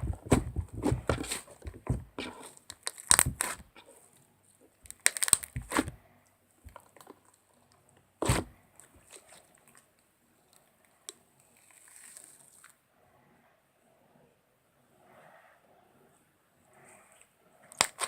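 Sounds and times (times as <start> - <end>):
crackling and rustling handling noises: 0.0 - 6.0, 6.6 - 12.8.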